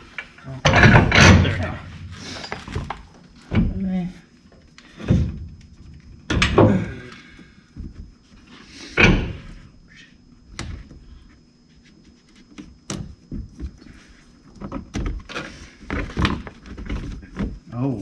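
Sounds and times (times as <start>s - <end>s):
tools and parts thunking and clanking: 0.1s - 3.8s, 4.9s - 7.1s, 12.9s - 17.7s.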